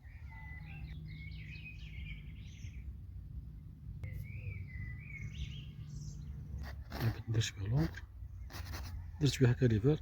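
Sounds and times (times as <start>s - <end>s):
low outdoor rumble: 0.0s - 10.0s
small birds chirping: 0.0s - 10.0s.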